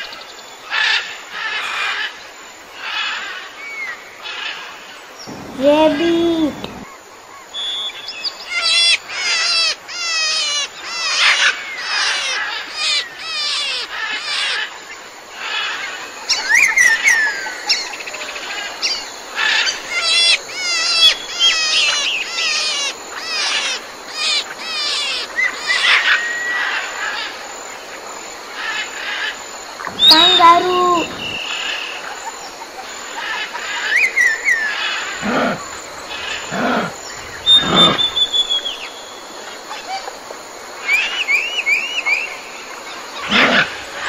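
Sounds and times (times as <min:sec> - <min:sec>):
birds chirping: 0:03.6 - 0:44.0
whistled bird notes: 0:05.2 - 0:08.8, 0:16.3 - 0:19.1, 0:25.2 - 0:26.8, 0:29.8 - 0:32.4, 0:33.8 - 0:40.0, 0:40.9 - 0:42.4.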